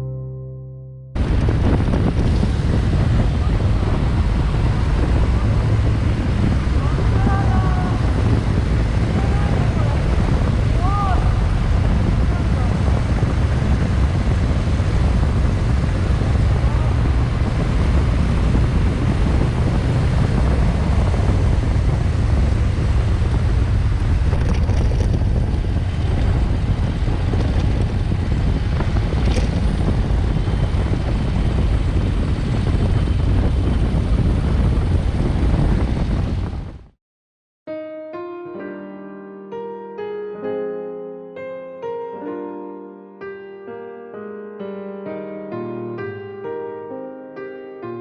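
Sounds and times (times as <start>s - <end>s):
low rumble: 1.2s - 37.0s
wind buffeting microphone: 1.2s - 37.0s.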